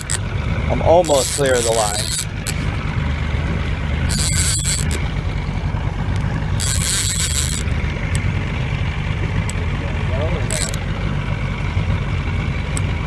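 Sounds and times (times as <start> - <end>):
boat engine rumbling: 0.0 - 13.0
short high hissing rasps: 4.1 - 5.0, 6.6 - 7.6.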